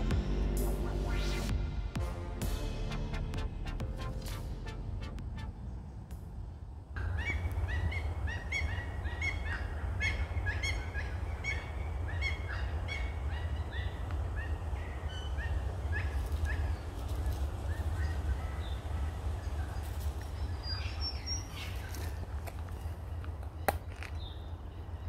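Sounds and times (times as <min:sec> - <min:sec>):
music: 0:00.0 - 0:05.7
steady low rumble: 0:00.0 - 0:25.0
birds calling with repeated notes: 0:07.0 - 0:25.0.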